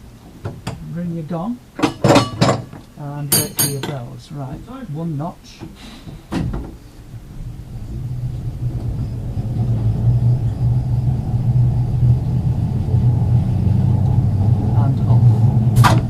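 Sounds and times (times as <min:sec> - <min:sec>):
tram motors and wheels rumbling: 0:00.0 - 0:16.0.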